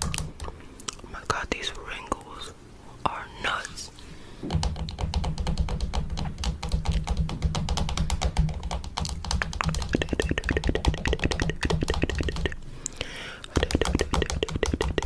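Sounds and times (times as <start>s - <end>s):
low steady hum: 0.0s - 15.0s
fingernails tapping on camera: 4.5s - 12.6s, 13.5s - 15.0s.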